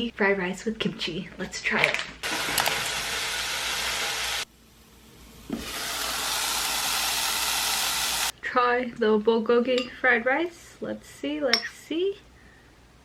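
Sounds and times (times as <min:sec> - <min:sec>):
fried rice sizzling: 0:02.2 - 0:08.3.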